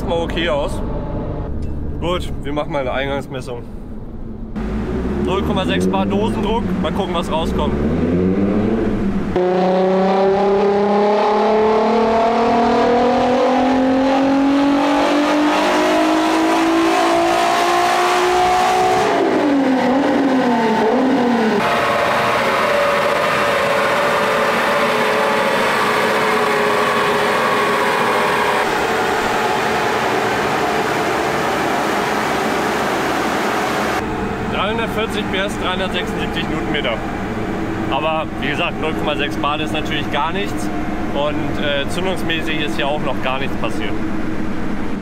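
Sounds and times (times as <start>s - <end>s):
car engine revving on a dyno: 4.6s - 36.4s.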